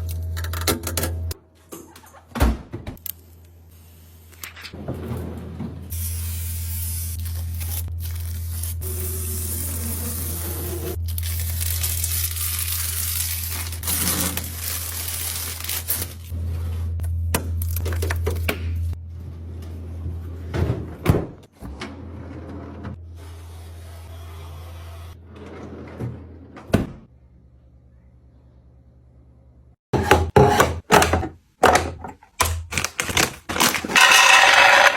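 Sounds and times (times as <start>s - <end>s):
plastic rustling and crinkling: 11.0s - 16.3s, 32.7s - 34.0s
items clicking and knocking: 30.0s - 34.9s.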